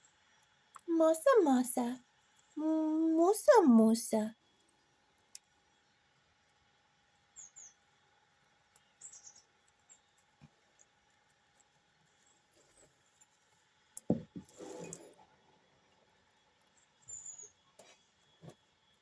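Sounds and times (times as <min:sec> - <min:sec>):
small birds chirping: 0:07.3 - 0:07.9, 0:08.7 - 0:10.3, 0:16.7 - 0:18.1
knocks: 0:14.1 - 0:14.5.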